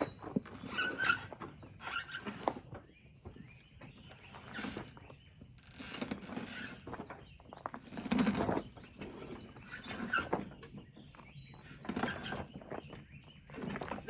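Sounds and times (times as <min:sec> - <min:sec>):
mower wheels scuffing: 0:00.0 - 0:10.8.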